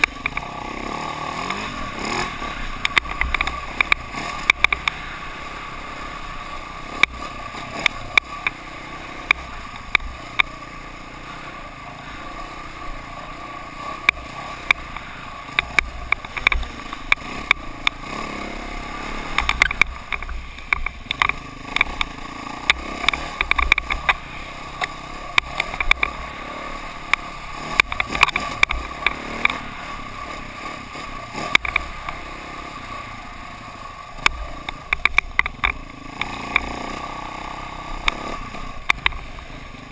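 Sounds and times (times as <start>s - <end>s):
sharp clicks and knocks: 0.0s - 0.5s, 2.7s - 5.0s, 7.0s - 8.6s, 9.2s - 10.6s, 14.0s - 18.0s, 19.2s - 26.2s, 27.0s - 29.7s, 30.3s - 32.2s, 34.2s - 36.8s, 38.0s - 39.5s
dirt bike engine droning: 0.0s - 39.9s.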